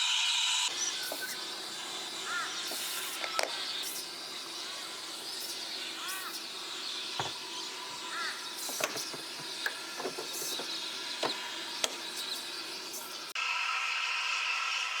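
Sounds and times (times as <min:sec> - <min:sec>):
steady hiss: 0:00.6 - 0:13.4
birds chirping: 0:00.7 - 0:13.4
sharp clicks or knocks: 0:08.6 - 0:12.4.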